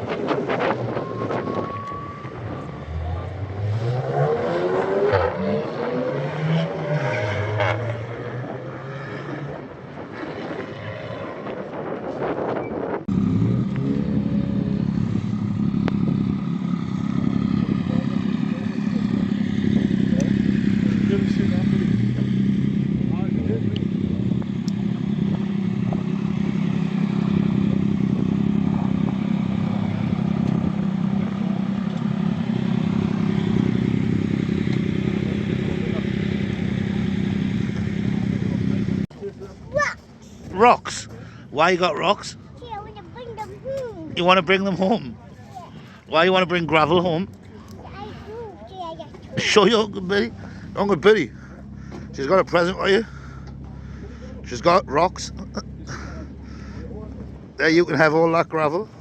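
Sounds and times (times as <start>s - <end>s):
car engine running: 13.1s - 59.0s.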